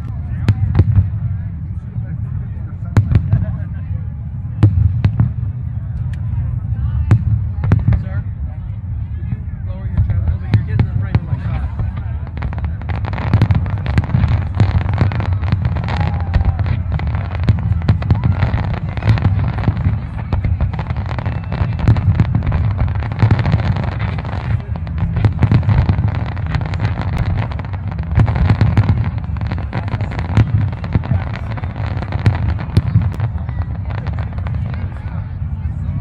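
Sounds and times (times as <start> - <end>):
low rumble: 0.0 - 36.0
fireworks bangs: 7.1 - 8.2, 10.0 - 36.0.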